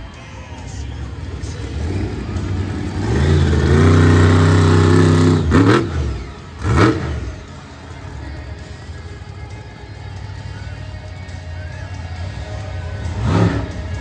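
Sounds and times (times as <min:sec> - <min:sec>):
truck engine revving: 0:00.4 - 0:14.0.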